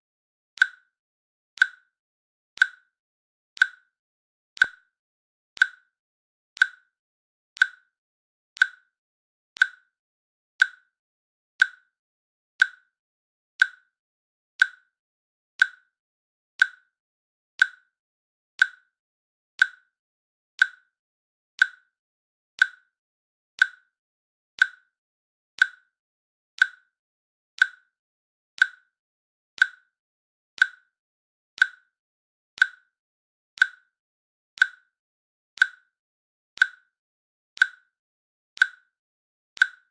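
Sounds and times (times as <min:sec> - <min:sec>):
timer clicks ticking: 0:00.6 - 0:00.9, 0:01.6 - 0:01.9, 0:02.6 - 0:02.9, 0:03.6 - 0:03.9, 0:04.6 - 0:05.0, 0:05.6 - 0:05.9, 0:06.6 - 0:07.0, 0:07.6 - 0:08.0, 0:08.6 - 0:09.0, 0:09.6 - 0:09.9, 0:10.6 - 0:10.9, 0:11.6 - 0:11.9, 0:12.6 - 0:12.9, 0:13.6 - 0:13.9, 0:14.6 - 0:14.9, 0:15.6 - 0:15.9, 0:16.6 - 0:16.9, 0:17.6 - 0:17.9, 0:18.6 - 0:18.9, 0:19.6 - 0:20.0, 0:20.6 - 0:21.0, 0:21.6 - 0:21.9, 0:22.6 - 0:23.0, 0:23.6 - 0:24.0, 0:24.6 - 0:25.0, 0:25.6 - 0:26.0, 0:26.6 - 0:27.0, 0:27.6 - 0:28.0, 0:28.6 - 0:29.0, 0:29.6 - 0:30.0, 0:30.6 - 0:31.0, 0:31.6 - 0:32.0, 0:32.6 - 0:33.0, 0:33.6 - 0:34.0, 0:34.6 - 0:35.0, 0:35.6 - 0:36.0, 0:36.6 - 0:37.0, 0:37.6 - 0:38.0, 0:38.6 - 0:38.9, 0:39.6 - 0:39.9.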